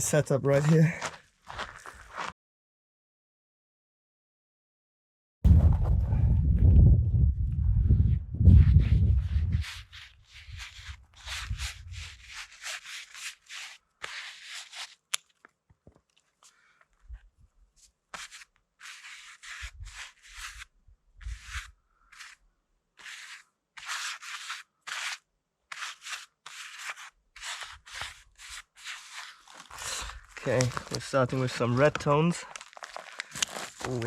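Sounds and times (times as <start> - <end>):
rustling and scraping of gear: 28.9 - 34.0.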